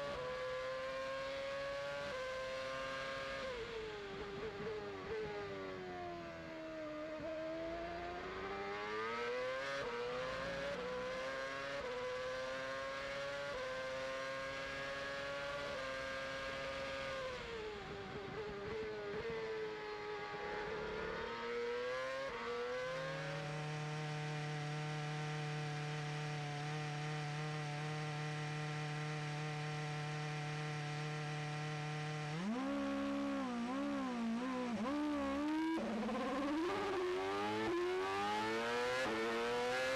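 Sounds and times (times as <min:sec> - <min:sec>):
racing car engine revving: 0:20.2 - 0:39.9.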